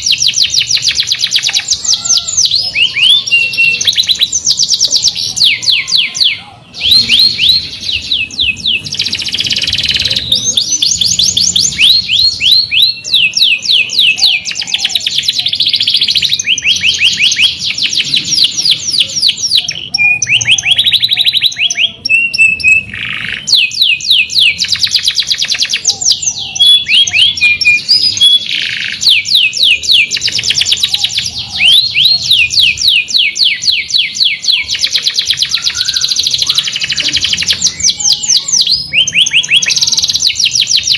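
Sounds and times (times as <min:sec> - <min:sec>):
canary singing fast trills: 0:00.0 - 0:40.9.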